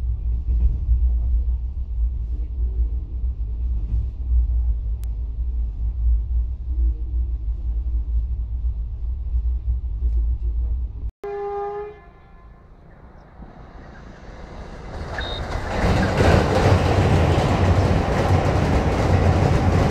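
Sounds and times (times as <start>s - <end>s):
train coach rumbling: 0.0s - 19.9s
short train horn blast: 11.2s - 13.1s.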